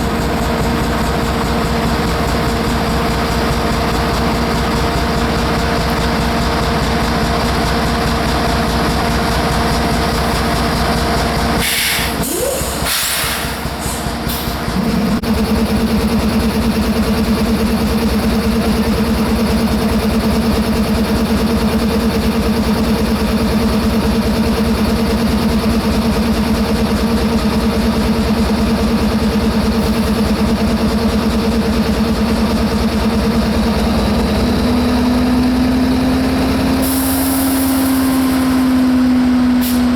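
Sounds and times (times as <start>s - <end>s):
heavy engine running: 0.0s - 39.9s
hissing bursts: 11.6s - 14.1s.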